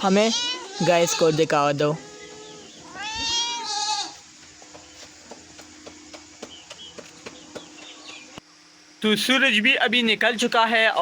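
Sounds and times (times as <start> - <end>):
goat bleating: 0.0 - 4.2
faint bird chirps: 0.1 - 4.1.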